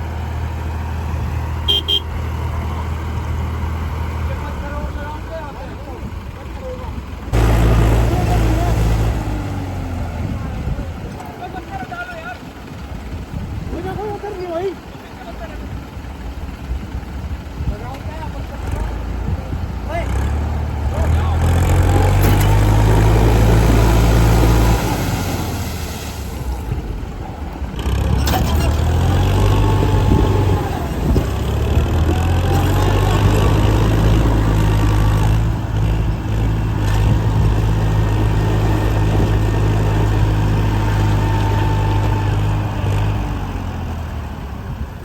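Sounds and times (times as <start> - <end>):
heavy vehicle engine rumbling: 0.0 - 45.0.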